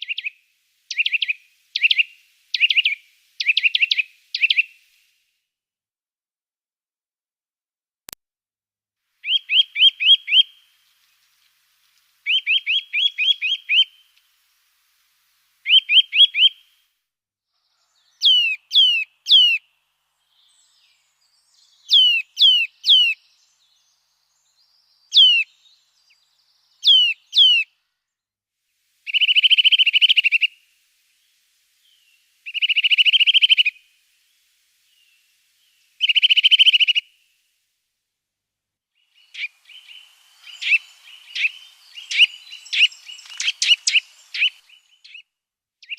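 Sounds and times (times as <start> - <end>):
small bird calling: 0.0 - 5.0, 9.2 - 14.4, 15.6 - 16.8, 17.6 - 27.8, 29.0 - 37.4, 38.9 - 45.9.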